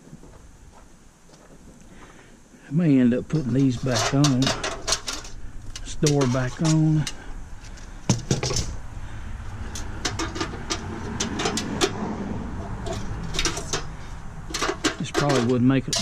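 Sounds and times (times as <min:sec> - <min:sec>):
metal parts clinking: 0:03.4 - 0:08.8, 0:09.7 - 0:12.0, 0:12.6 - 0:16.0.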